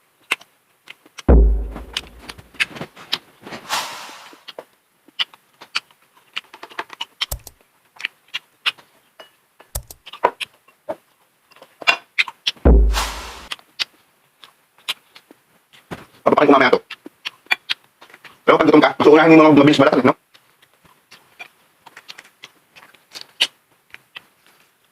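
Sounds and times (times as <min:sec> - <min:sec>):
chewing with crunches: 0:00.2 - 0:01.3, 0:05.0 - 0:09.0, 0:09.8 - 0:12.6, 0:13.5 - 0:15.9, 0:16.8 - 0:18.5, 0:20.2 - 0:24.9
clicks and smacks of food handling: 0:00.2 - 0:01.3, 0:04.5 - 0:12.6, 0:13.5 - 0:18.5, 0:20.2 - 0:24.9
heavy thump with crunchy hiss: 0:01.3 - 0:02.6, 0:03.5 - 0:04.4, 0:12.7 - 0:13.5.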